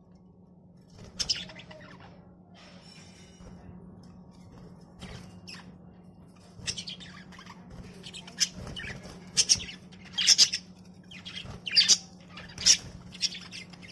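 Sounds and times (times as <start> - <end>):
low steady hum: 0.0 - 13.9
budgerigars chirping and squawking: 1.0 - 2.2, 6.4 - 13.9.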